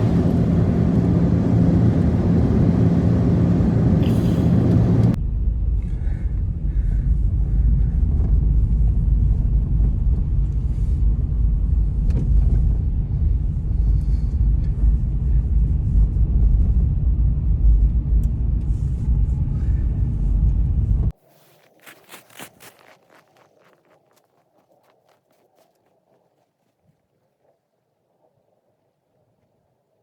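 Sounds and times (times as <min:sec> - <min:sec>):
wind buffeting microphone: 0:00.0 - 0:05.2.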